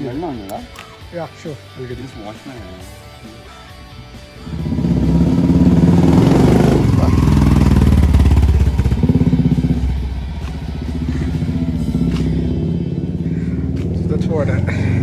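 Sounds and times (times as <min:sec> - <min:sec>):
motorcycle engine running: 0:04.2 - 0:15.0.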